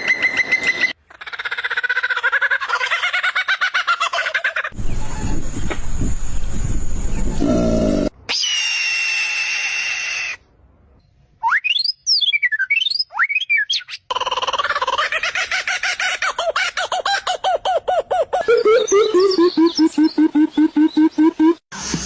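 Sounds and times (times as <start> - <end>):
bird whistling: 11.4 - 14.0.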